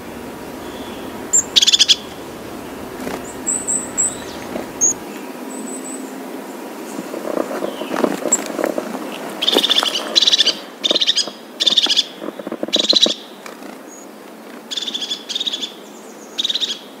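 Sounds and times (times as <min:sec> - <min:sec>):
bird chattering calls: 0:00.0 - 0:05.0.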